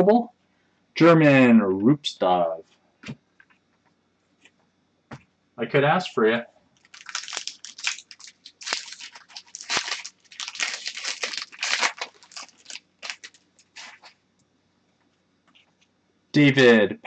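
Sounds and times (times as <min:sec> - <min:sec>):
cards and plastic rustling: 0:06.8 - 0:14.2.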